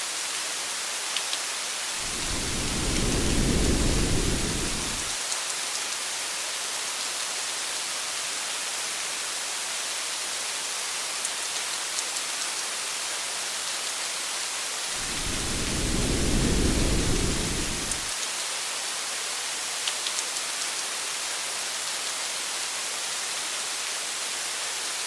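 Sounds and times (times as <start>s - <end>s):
steady rain hiss: 1.8s - 5.2s, 14.8s - 18.2s
thunder rumbling: 2.0s - 5.2s, 14.9s - 18.1s.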